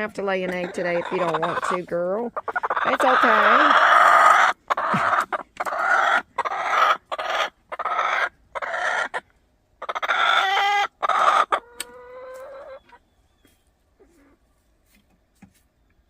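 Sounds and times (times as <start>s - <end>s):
hen squawking: 0.0s - 9.2s, 9.8s - 12.8s.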